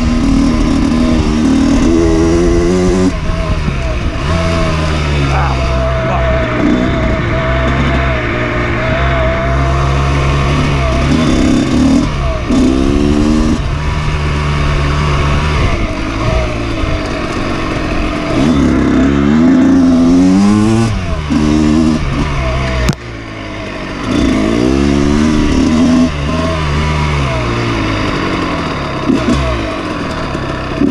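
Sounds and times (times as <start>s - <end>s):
dirt bike engine revving: 0.0s - 30.9s.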